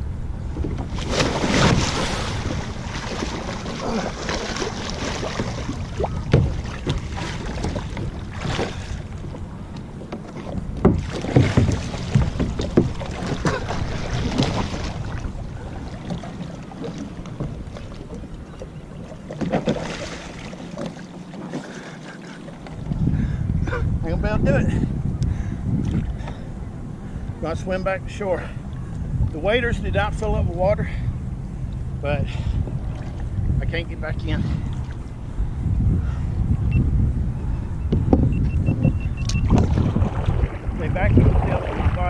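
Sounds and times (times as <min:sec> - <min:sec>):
wind rumble on microphone: 0:00.0 - 0:20.8, 0:21.5 - 0:42.0
water splashing and sloshing: 0:00.0 - 0:23.9, 0:24.8 - 0:42.0.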